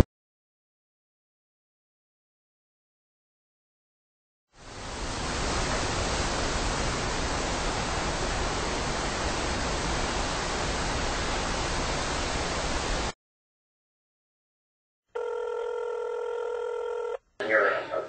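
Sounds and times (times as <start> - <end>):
steady rushing hiss: 4.6 - 13.1.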